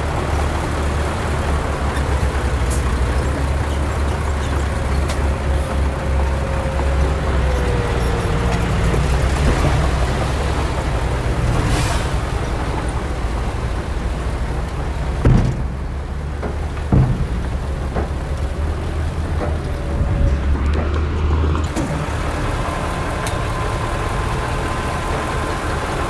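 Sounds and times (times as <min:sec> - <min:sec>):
diesel machinery engine drone: 0:00.0 - 0:26.0
sharp thumps: 0:15.0 - 0:22.1.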